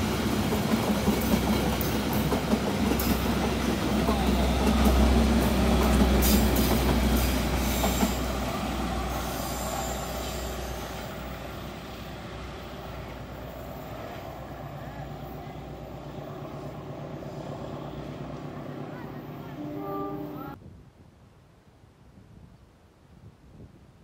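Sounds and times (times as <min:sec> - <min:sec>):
train wheels clicking on rails: 0:00.0 - 0:11.4
train passing: 0:00.0 - 0:20.6.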